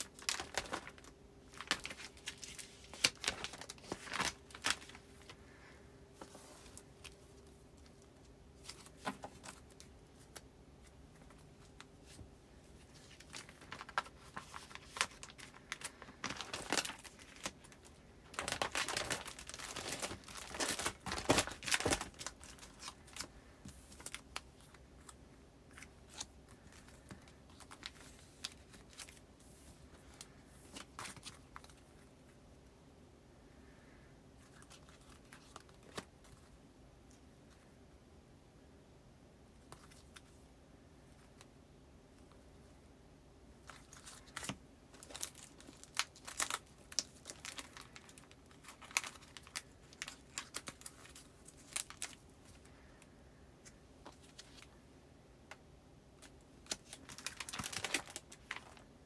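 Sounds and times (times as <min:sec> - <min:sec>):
paper rustling: 0:00.0 - 0:32.1.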